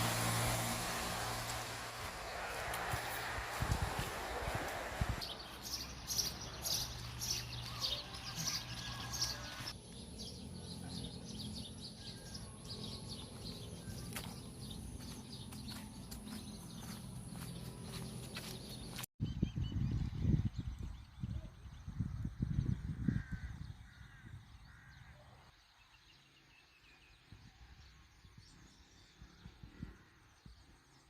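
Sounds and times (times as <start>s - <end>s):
birds chirping: 0.0s - 19.7s.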